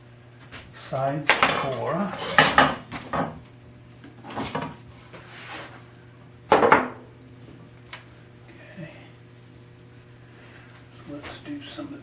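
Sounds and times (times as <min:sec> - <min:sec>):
steady low hum: 0:00.0 - 0:12.0
metal tools clinking and scraping: 0:01.3 - 0:03.3.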